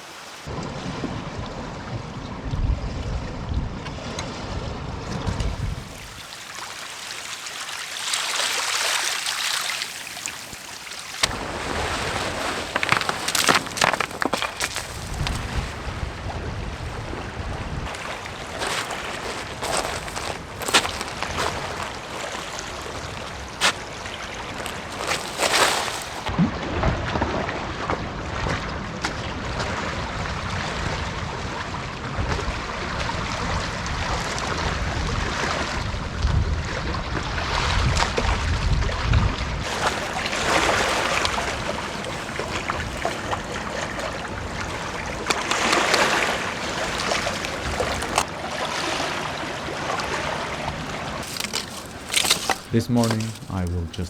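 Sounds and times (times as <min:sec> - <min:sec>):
wind: 0:00.0 - 0:54.0
water noise: 0:05.6 - 0:26.3, 0:39.6 - 0:54.0.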